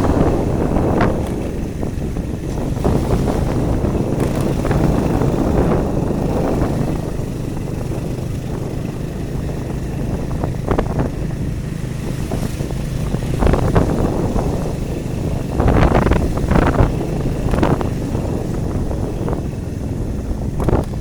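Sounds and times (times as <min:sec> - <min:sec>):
vehicle road rumble: 0:00.0 - 0:21.0
wind buffeting microphone: 0:00.0 - 0:21.0.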